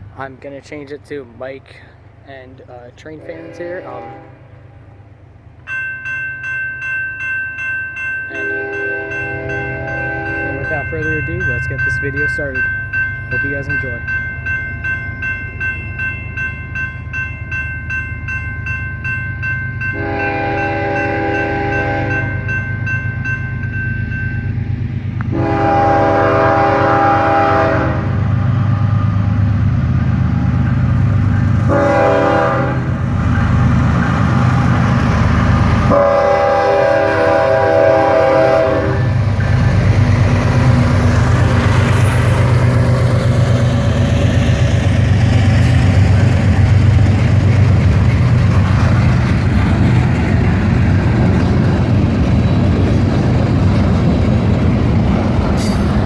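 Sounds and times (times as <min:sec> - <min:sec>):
train rolling past rumble: 0:00.0 - 0:56.0
locomotive air horn blasts: 0:03.2 - 0:04.7, 0:08.3 - 0:10.7, 0:20.0 - 0:22.3, 0:25.3 - 0:28.2, 0:31.7 - 0:32.9, 0:35.9 - 0:39.2.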